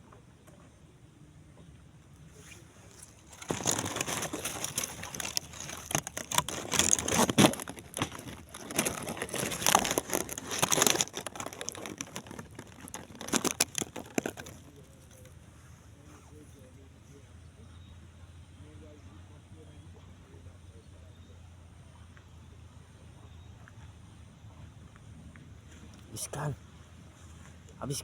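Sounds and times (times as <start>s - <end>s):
crinkling handling noise: 2.2s - 16.7s.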